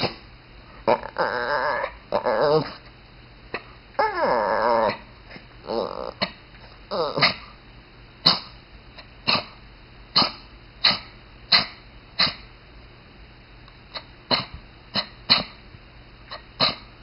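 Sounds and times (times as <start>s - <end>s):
dog sneezing or snorting: 8.2s - 8.6s, 9.3s - 9.6s, 10.2s - 12.4s, 14.3s - 15.6s, 16.3s - 16.9s.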